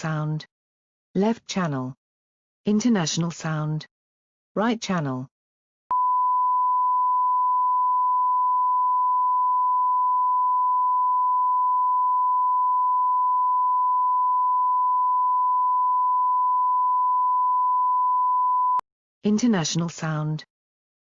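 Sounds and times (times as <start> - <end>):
sine-wave test tone: 5.9 - 18.8.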